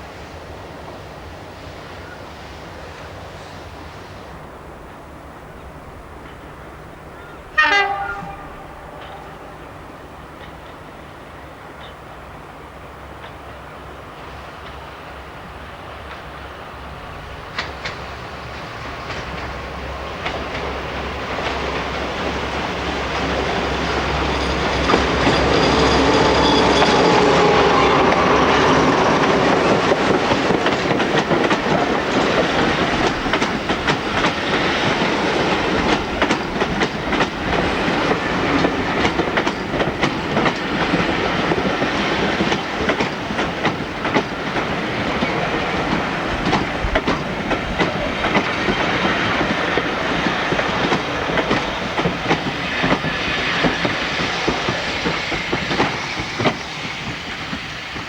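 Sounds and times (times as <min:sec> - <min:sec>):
diesel train passing: 0:00.0 - 0:58.0
train wheels clattering over rail joints: 0:16.0 - 0:58.0.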